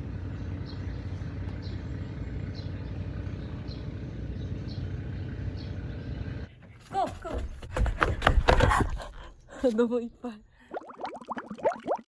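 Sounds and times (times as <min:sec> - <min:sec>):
low engine rumble: 0:00.0 - 0:08.0.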